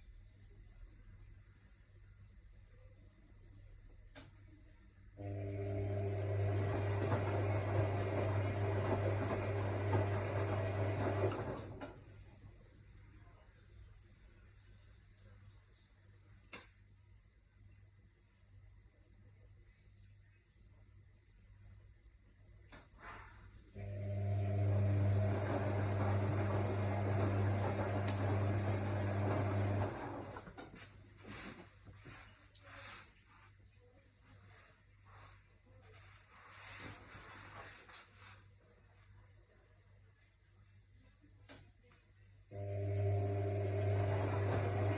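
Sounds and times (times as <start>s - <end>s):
washing machine hum and water: 5.2s - 12.5s, 23.8s - 31.4s, 42.5s - 44.9s.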